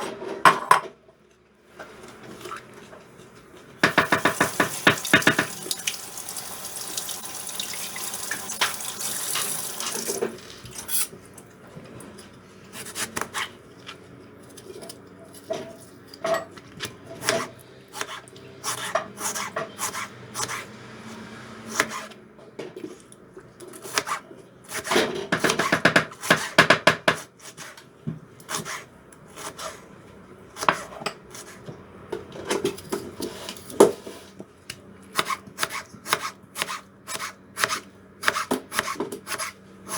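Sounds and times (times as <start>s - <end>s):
water running from a tap: 4.2s - 10.3s.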